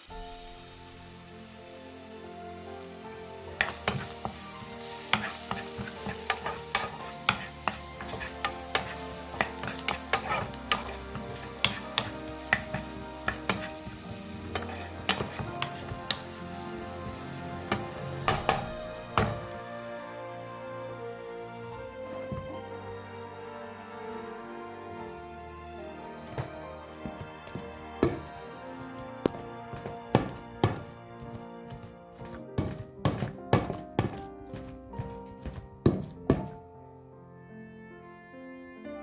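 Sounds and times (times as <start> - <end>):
potatoes sizzling in a pan: 0.0 - 20.2, 21.6 - 23.2, 25.9 - 36.6
utensil knocking against pan: 3.6 - 4.4, 5.1 - 16.3, 17.0 - 19.6, 26.3 - 36.6.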